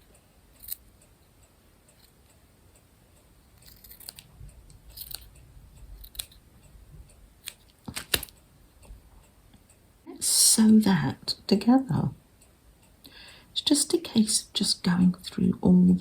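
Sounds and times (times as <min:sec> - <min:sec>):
scissors snipping fabric: 0:03.6 - 0:04.2, 0:04.9 - 0:05.3, 0:06.0 - 0:06.4.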